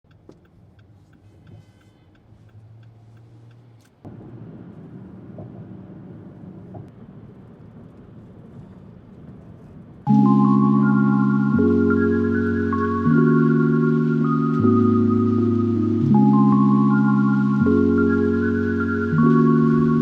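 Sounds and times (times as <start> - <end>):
light ticking: 0.1 - 4.1
low ambient rumble: 2.3 - 20.0
mallet music: 10.1 - 20.0.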